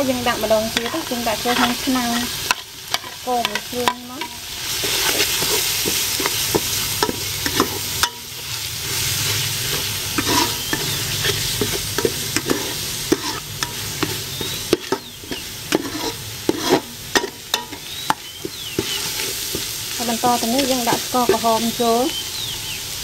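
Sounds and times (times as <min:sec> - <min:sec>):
curry paste sizzling in a pot: 0:00.0 - 0:23.0
spatula scraping a pot: 0:00.3 - 0:21.6.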